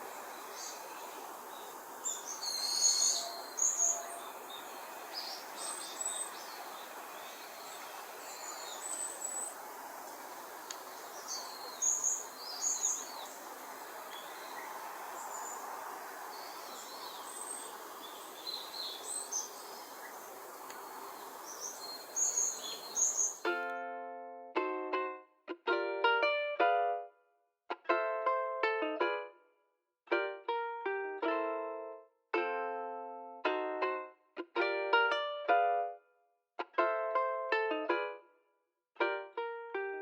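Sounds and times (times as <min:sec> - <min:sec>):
songbirds chirping: 0:00.0 - 0:23.7.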